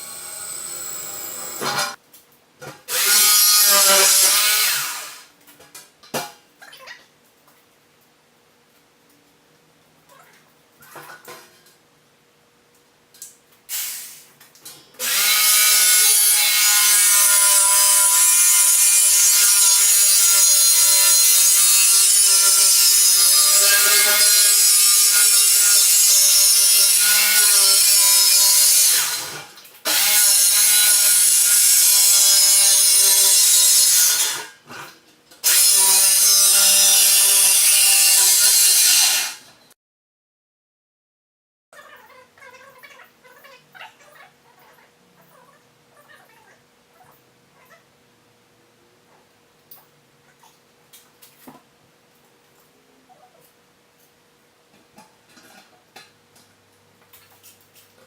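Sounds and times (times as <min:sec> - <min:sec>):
power tool cutting: 0:00.0 - 0:02.0, 0:02.9 - 0:05.2, 0:15.0 - 0:34.5, 0:35.4 - 0:39.5.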